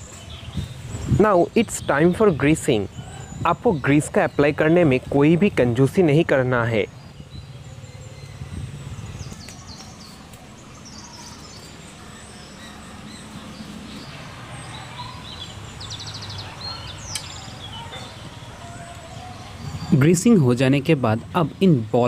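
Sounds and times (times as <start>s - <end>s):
small birds chirping: 0.0s - 22.0s
low background rumble: 4.3s - 19.9s.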